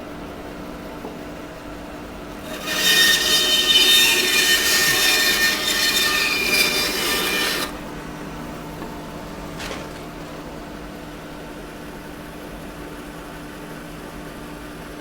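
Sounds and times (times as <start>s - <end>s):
bandsaw motor hum: 2.1s - 10.7s
bandsaw cutting wood: 2.4s - 8.0s.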